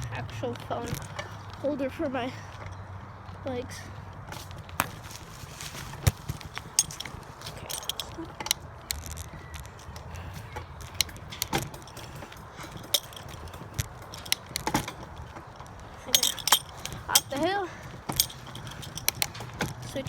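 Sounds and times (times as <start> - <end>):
keys jingling: 5.8 - 20.0.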